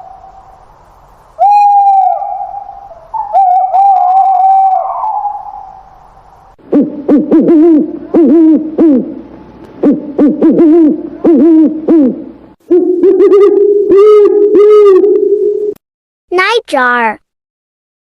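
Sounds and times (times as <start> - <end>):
cuckoo calling: 0.0 - 0.7, 1.4 - 6.0, 6.7 - 9.2, 9.8 - 15.8.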